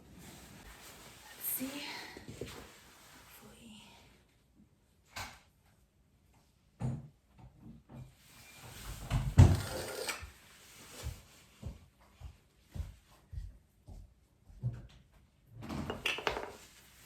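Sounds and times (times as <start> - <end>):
wall covering rustling: 0.0 - 4.3, 8.1 - 14.6, 16.4 - 17.0.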